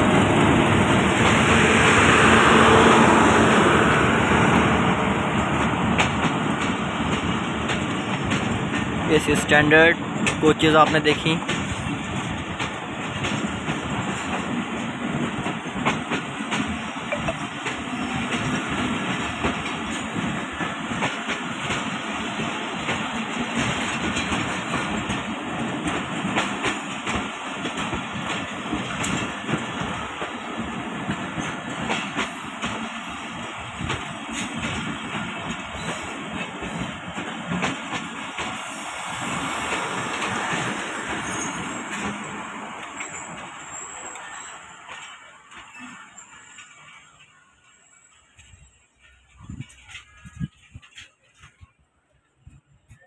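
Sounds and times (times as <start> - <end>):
train wheels rumbling on track: 0.0 - 53.0
wheels clicking over rail joints: 5.4 - 47.4.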